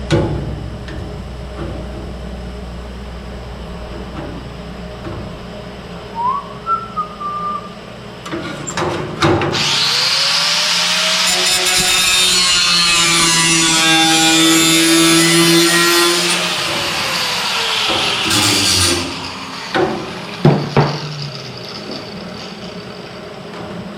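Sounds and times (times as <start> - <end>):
power tool low hum: 9.5 - 23.2
motor whine and metal cutting: 9.5 - 23.9.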